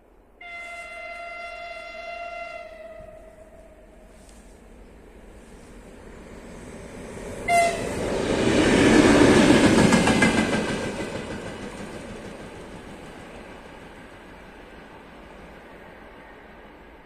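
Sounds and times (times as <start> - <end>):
train rumble and wheel clatter: 0.0 - 17.0
train horn blast: 0.4 - 4.4, 7.4 - 8.1.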